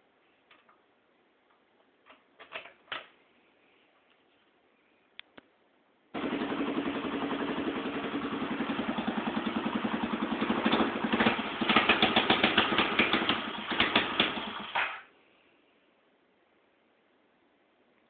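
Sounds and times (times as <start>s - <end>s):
small engine starting and idling: 6.2s - 15.0s.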